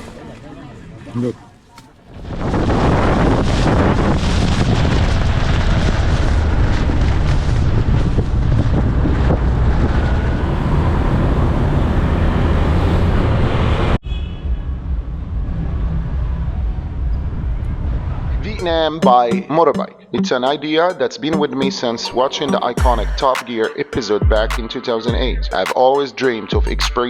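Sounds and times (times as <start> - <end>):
wind buffeting microphone: 0.0 - 13.9
motorbike road noise: 0.0 - 18.6.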